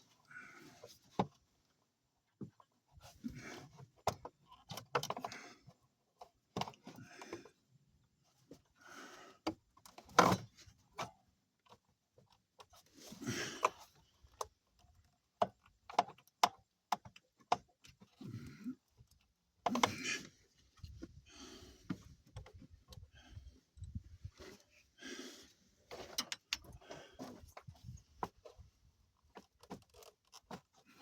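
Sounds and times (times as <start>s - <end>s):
rustles and scrapes: 19.8s - 31.0s
clicks and knocks of tools: 25.9s - 28.4s.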